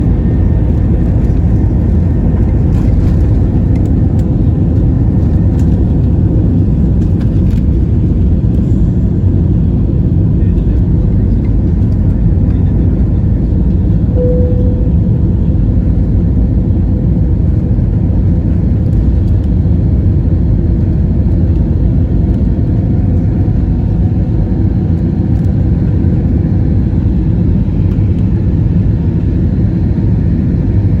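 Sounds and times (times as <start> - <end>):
aircraft engines rumbling: 0.0 - 31.0
faint tone: 14.1 - 15.7.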